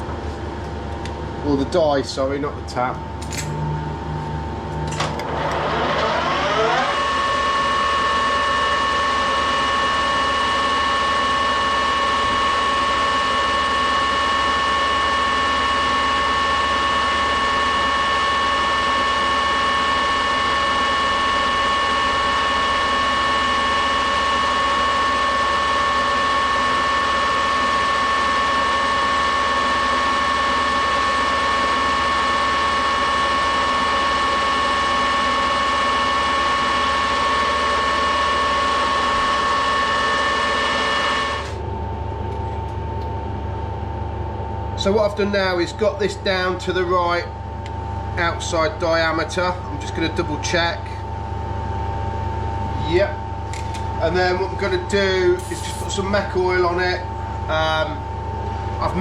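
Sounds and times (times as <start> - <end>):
gear whine: 3.2 - 41.7
metal lathe running: 5.0 - 41.6, 53.4 - 58.2.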